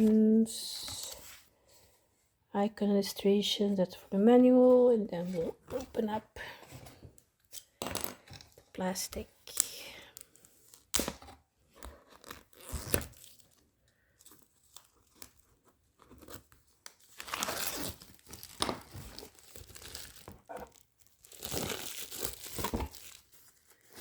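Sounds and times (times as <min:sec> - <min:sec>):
plastic packaging crinkling: 0:16.2 - 0:24.0.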